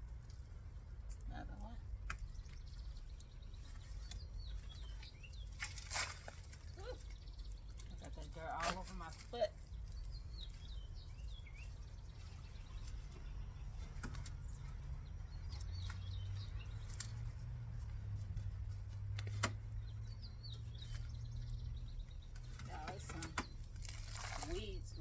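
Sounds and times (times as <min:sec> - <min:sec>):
small songbird chirping: 0:01.0 - 0:25.0.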